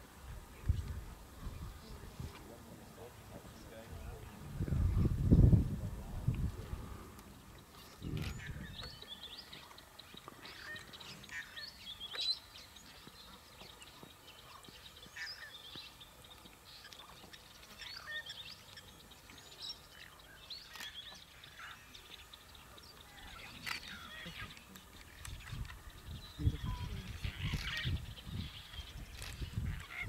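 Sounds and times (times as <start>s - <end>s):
wild birds chirping: 6.2s - 30.0s.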